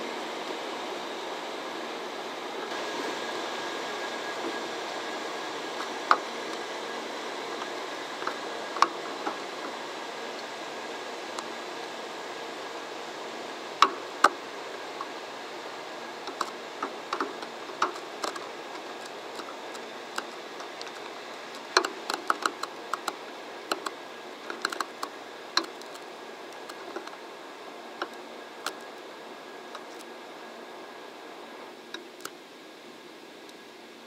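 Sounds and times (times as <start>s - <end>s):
train steady hiss: 0.0s - 34.0s
sharp clicks and ticks: 16.3s - 27.1s.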